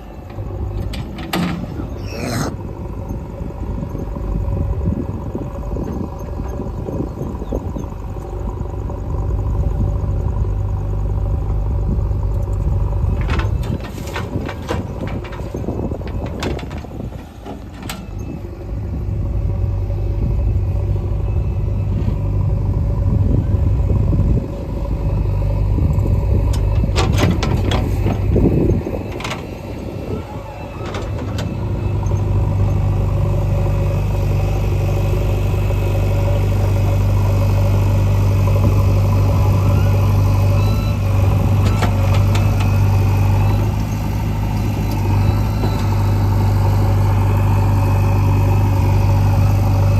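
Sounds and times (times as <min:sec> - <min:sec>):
heavy diesel engine under load: 0:00.0 - 0:49.9.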